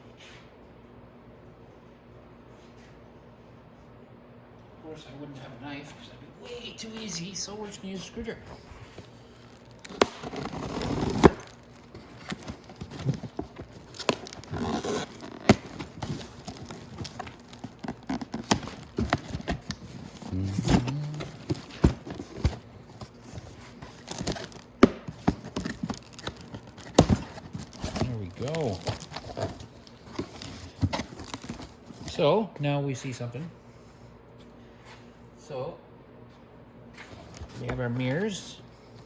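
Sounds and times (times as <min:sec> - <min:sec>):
cardboard tearing: 0:08.6 - 0:32.2.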